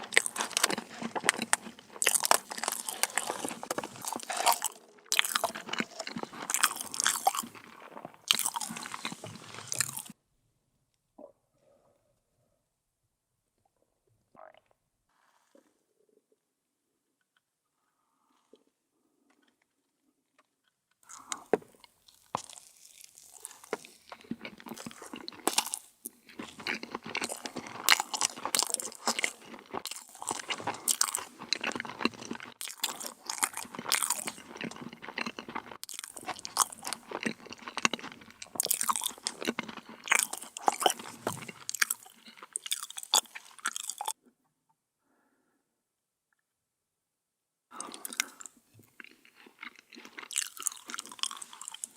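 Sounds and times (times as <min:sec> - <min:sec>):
crunching and chewing: 0:00.0 - 0:10.2, 0:18.4 - 0:44.2, 0:47.8 - 0:51.9.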